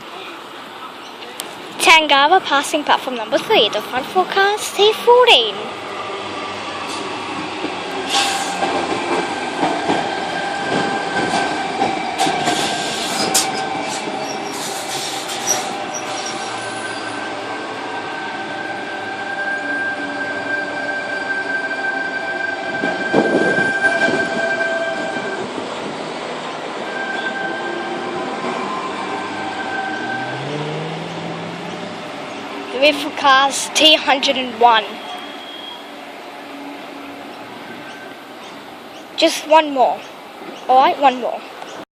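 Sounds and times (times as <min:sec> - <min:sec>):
electric train whine: 0:05.0 - 0:33.8
high wheel squeals: 0:12.5 - 0:17.3, 0:26.8 - 0:32.4, 0:34.8 - 0:39.0.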